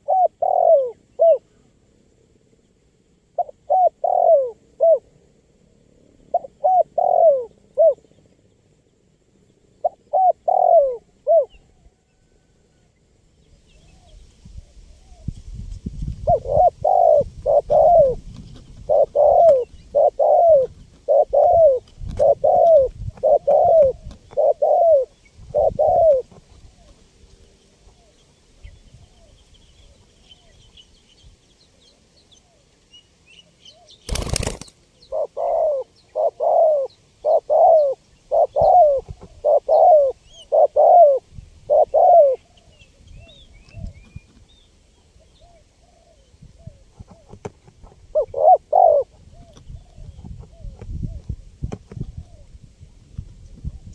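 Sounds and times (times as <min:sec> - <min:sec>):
dove cooing: 0:00.0 - 0:01.6, 0:03.3 - 0:05.2, 0:06.2 - 0:08.2, 0:09.8 - 0:12.3, 0:16.1 - 0:27.0, 0:33.7 - 0:43.9, 0:45.2 - 0:52.6
faint small birds chirping: 0:00.0 - 0:53.9.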